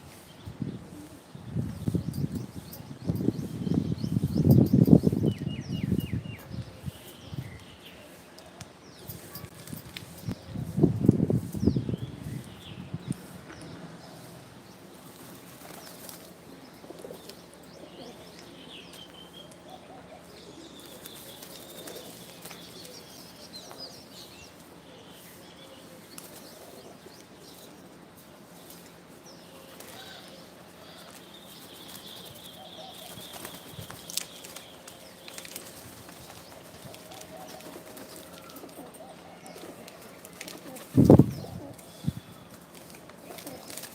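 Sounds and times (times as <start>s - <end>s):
bird wings fluttering: 15.0s - 16.4s, 20.8s - 23.1s, 31.1s - 38.8s, 39.6s - 41.3s, 42.5s - 43.9s.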